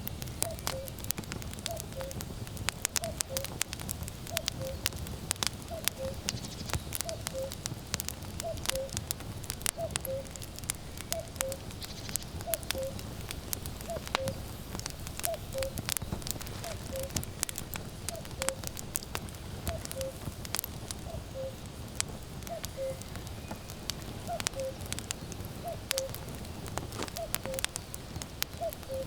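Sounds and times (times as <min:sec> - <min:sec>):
firewood crackling and popping: 0:00.0 - 0:29.0
cuckoo calling: 0:00.4 - 0:02.2, 0:03.0 - 0:03.6, 0:04.3 - 0:05.0, 0:05.6 - 0:07.7, 0:08.3 - 0:09.1, 0:09.7 - 0:13.2, 0:13.8 - 0:18.7, 0:19.7 - 0:20.3, 0:21.0 - 0:21.8, 0:22.4 - 0:29.0.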